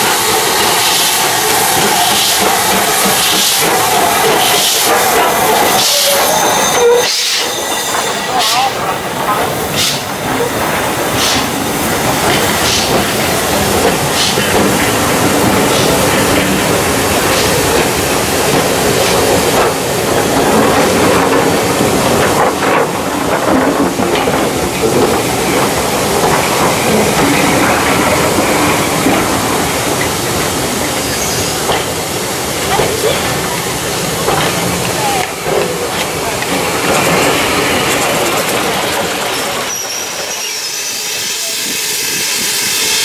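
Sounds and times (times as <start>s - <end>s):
train wheels rumbling on rail: 0.0s - 43.0s
wheels clicking over rail joints: 8.4s - 28.4s, 31.6s - 40.4s.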